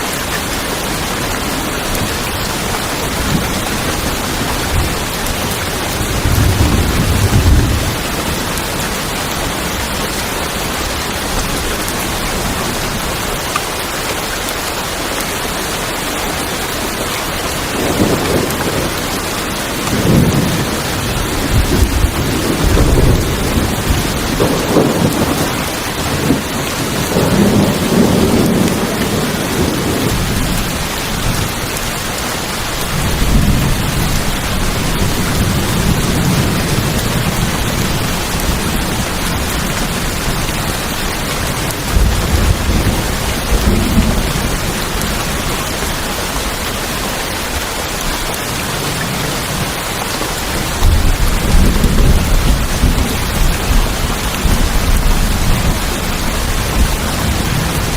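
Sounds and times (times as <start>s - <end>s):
heavy rain on a tin roof: 0.0s - 57.9s
thunder rolling: 3.1s - 8.6s, 19.8s - 31.5s, 41.4s - 46.0s, 50.7s - 57.9s.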